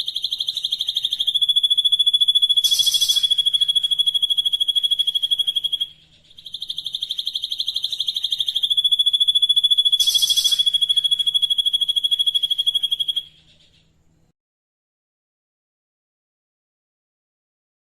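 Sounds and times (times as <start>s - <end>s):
songbird fast trill: 0.0s - 13.9s.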